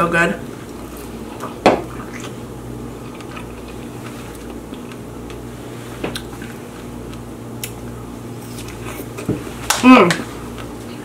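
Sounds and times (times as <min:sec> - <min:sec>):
low steady hum: 0:00.0 - 0:11.0
chewing strawberry: 0:00.6 - 0:05.4.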